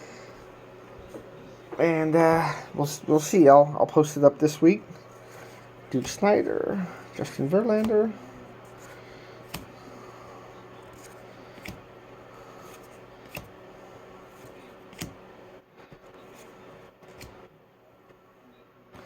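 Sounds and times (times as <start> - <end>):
steady low hum: 0.0 - 19.0
trading cards being flipped through: 7.6 - 9.8, 10.8 - 11.8, 12.6 - 13.5, 14.3 - 15.2, 15.9 - 17.4.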